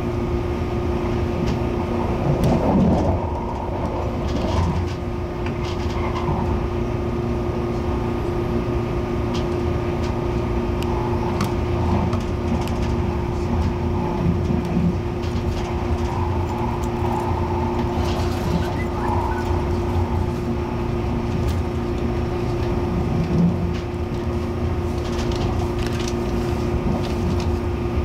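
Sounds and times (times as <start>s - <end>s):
train carriage rumble: 0.0s - 28.0s.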